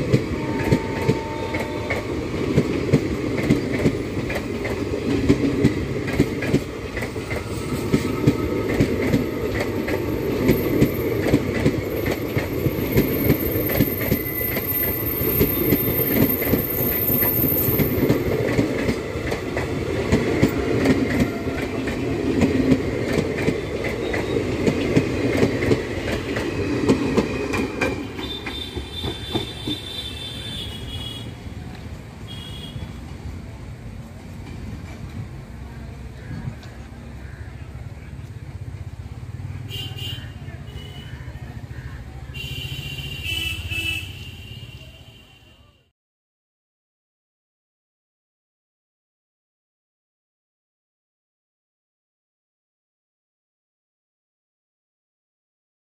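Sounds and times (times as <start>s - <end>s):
wheels clickety-clack on rail joints: 0.0s - 44.0s
passing train rumble: 0.0s - 45.0s.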